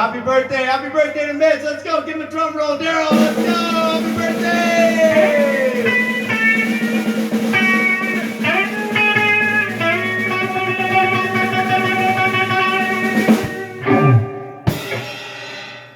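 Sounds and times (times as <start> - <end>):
drums: 0.0 - 15.9
rock band jamming: 2.3 - 15.9
electric guitar bending notes: 3.1 - 15.1.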